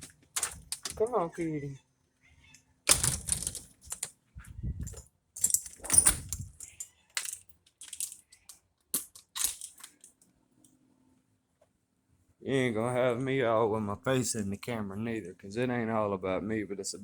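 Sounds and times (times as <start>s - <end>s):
objects clicking and rustling: 0.0s - 1.2s, 2.9s - 4.2s, 4.8s - 10.3s.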